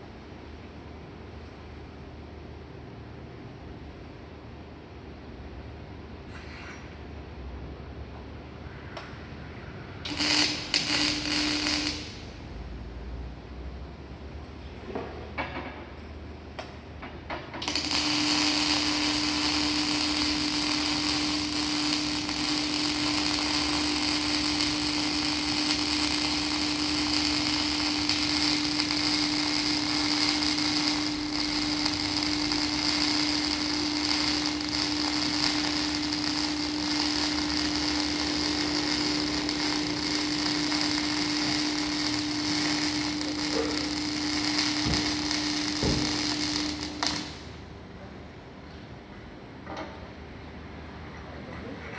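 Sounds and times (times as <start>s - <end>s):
welding arc crackling hiss: 10.0s - 12.8s, 17.5s - 47.7s.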